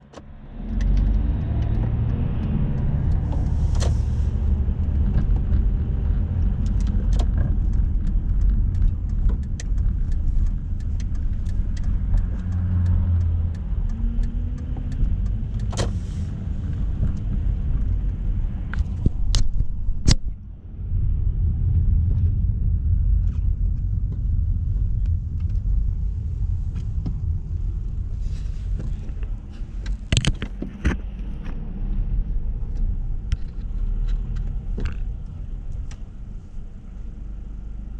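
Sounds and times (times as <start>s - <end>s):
small clicks and knocks: 0.0s - 16.0s, 28.8s - 31.6s, 32.6s - 36.1s
car engine and road noise: 0.0s - 37.9s.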